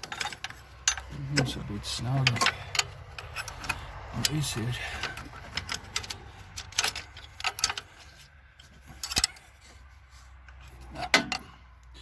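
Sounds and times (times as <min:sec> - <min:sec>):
metal tools clinking: 0:00.0 - 0:11.6.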